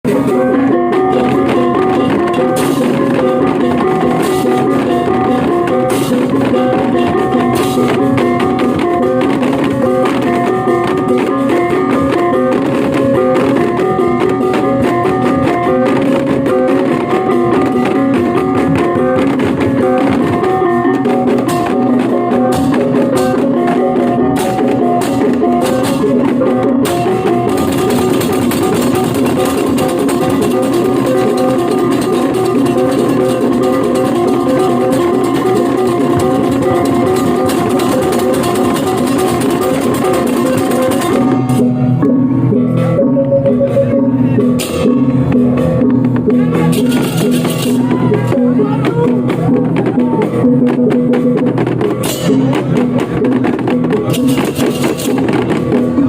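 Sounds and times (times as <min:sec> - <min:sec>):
drums: 0:00.0 - 0:56.0
cymbals: 0:00.1 - 0:56.0
gamelan playing: 0:00.1 - 0:56.0
metallophone tones: 0:00.1 - 0:56.0.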